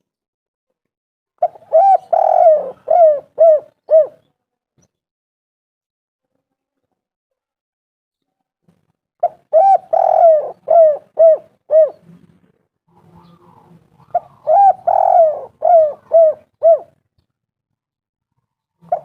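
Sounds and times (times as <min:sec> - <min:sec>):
dove cooing: 0:01.4 - 0:04.2, 0:09.2 - 0:12.3, 0:13.2 - 0:17.0, 0:18.8 - 0:19.0.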